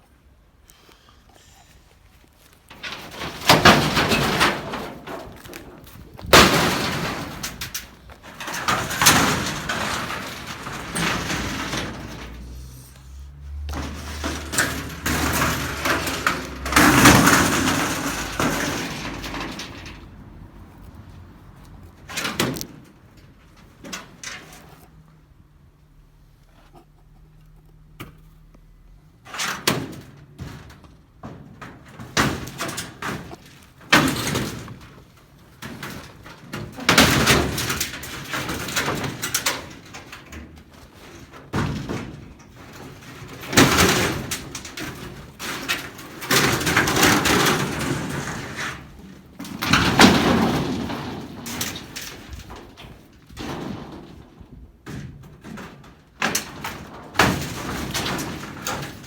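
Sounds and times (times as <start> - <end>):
sheet metal rattling and scraping: 2.6 - 25.0, 29.2 - 59.0.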